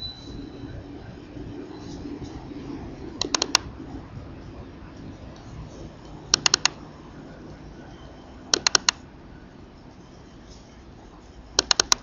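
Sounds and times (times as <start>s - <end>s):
low background hum: 0.0s - 12.0s
sharp clicks: 3.2s - 3.7s, 5.4s - 6.8s, 8.5s - 9.0s, 11.6s - 12.0s.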